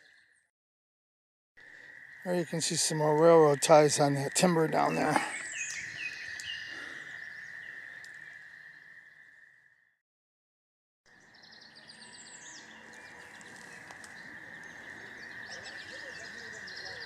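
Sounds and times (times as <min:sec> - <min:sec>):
birds chirping: 0:01.8 - 0:09.0, 0:11.1 - 0:17.0.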